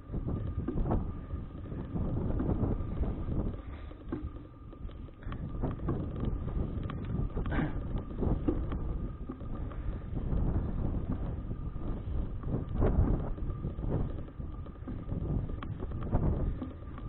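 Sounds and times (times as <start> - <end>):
bicycle clicks and rattles: 0.0 - 17.0
wind rumbling on microphone: 0.0 - 17.0.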